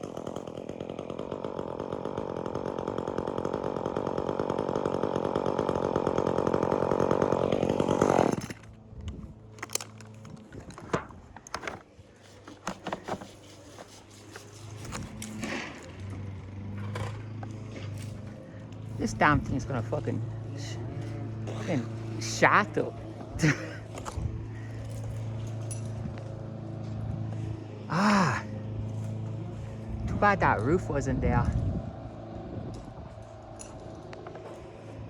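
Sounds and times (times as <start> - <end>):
chainsaw cutting wood: 0.0 - 35.0.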